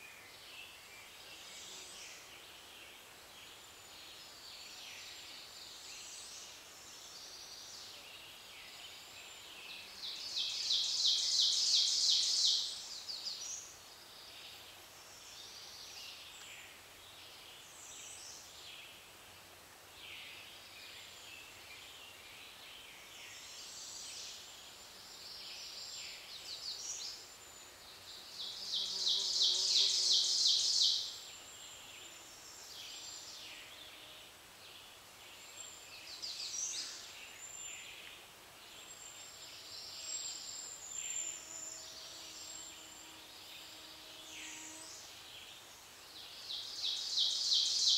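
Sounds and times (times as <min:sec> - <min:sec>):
bird song of fast repeated notes: 0:00.0 - 0:19.1, 0:20.0 - 0:47.9
birdsong chorus: 0:20.0 - 0:47.9.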